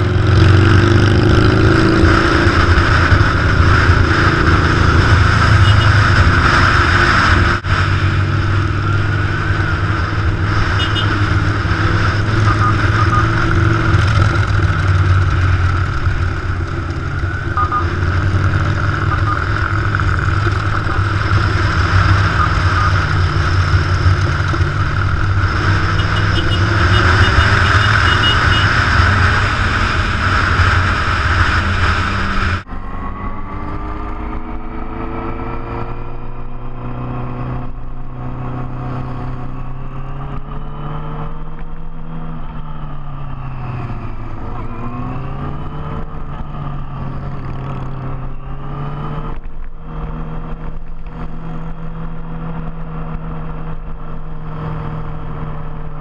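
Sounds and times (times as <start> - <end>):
motorcycle engines running: 0.0 - 56.0
wind and road noise: 0.0 - 56.0.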